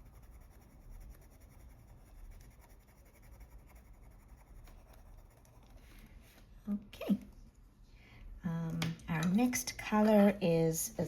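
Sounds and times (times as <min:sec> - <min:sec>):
pencil scratching on paper: 0:00.0 - 0:05.8.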